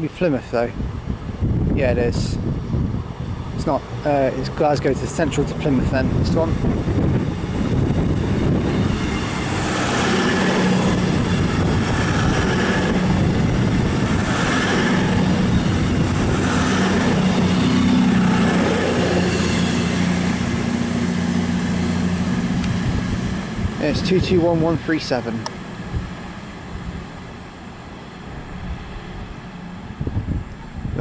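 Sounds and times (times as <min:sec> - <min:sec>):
diesel train engines humming: 0:00.0 - 0:31.0
wheel and rail noise: 0:00.0 - 0:31.0.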